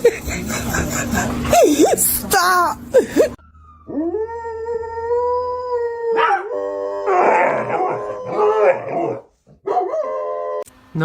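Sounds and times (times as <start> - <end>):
dog howling: 3.8 - 10.7.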